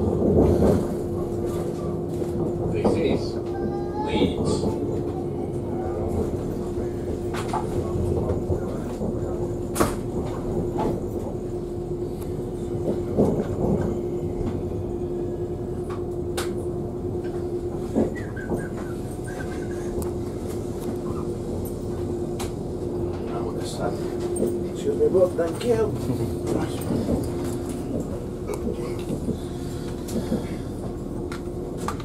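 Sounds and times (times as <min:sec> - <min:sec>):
constant hum: 0:00.0 - 0:32.0
train wheels rumbling: 0:00.0 - 0:32.0.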